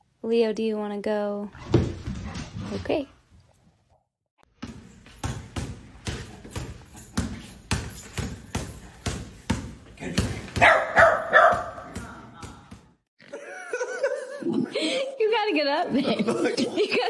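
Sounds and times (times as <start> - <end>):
dog barking: 10.6 - 12.0.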